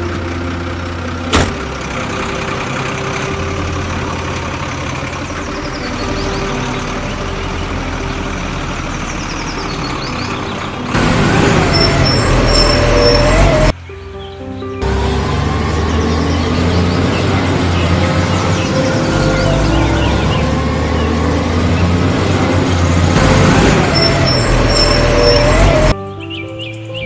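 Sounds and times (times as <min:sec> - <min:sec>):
truck engine running: 0:00.0 - 0:13.8, 0:14.8 - 0:26.0.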